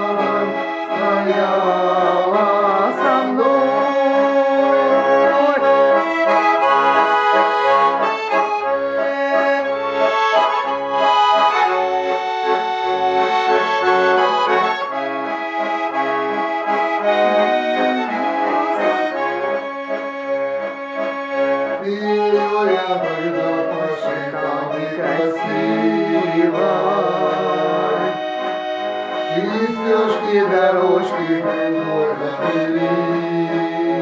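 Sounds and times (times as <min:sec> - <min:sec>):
button accordion melody: 0:00.0 - 0:34.0.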